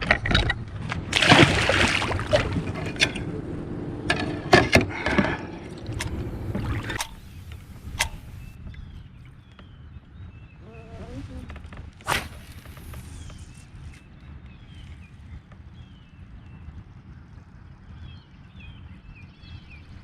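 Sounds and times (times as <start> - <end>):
water sloshing: 0.8 - 8.5
faint bird chirps: 6.1 - 16.2.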